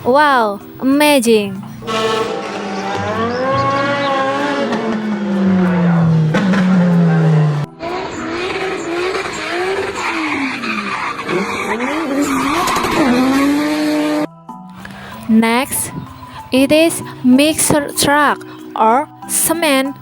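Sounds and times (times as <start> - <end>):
tyre squeal: 1.8 - 5.0, 7.8 - 14.2
racing car engine revving: 1.8 - 14.3.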